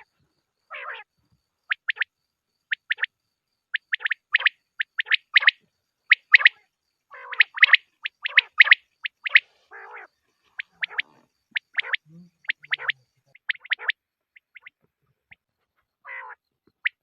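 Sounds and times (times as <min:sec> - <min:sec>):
quail call: 0:00.7 - 0:01.1, 0:03.8 - 0:17.0.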